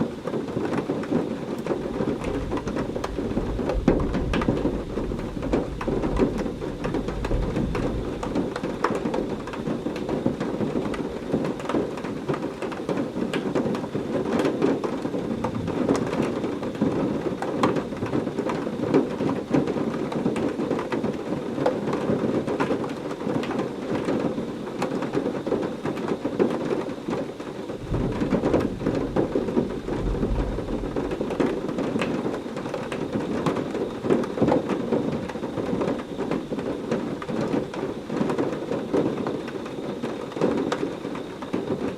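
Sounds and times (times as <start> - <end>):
heavy rain falling: 0.0 - 41.9
distant thunder rumble: 0.8 - 12.4, 13.1 - 19.3, 27.7 - 41.9.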